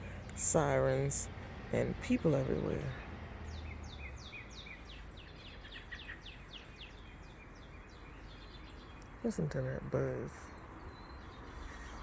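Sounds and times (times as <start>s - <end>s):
faint low background rumble: 0.0s - 12.0s
songbird singing falling notes: 2.8s - 12.0s.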